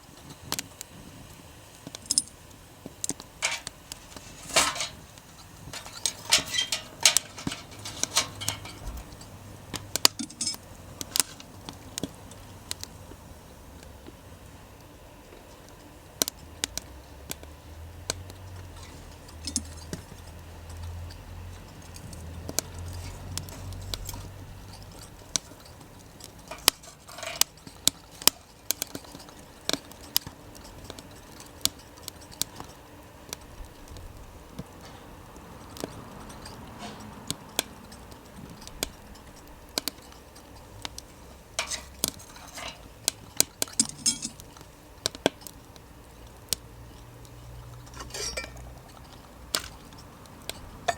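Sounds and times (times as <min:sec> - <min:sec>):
wood fire crackling: 0:00.0 - 0:50.9
metallic clinks: 0:01.9 - 0:02.4, 0:03.4 - 0:09.4, 0:10.0 - 0:10.7, 0:19.3 - 0:20.0, 0:43.6 - 0:44.4.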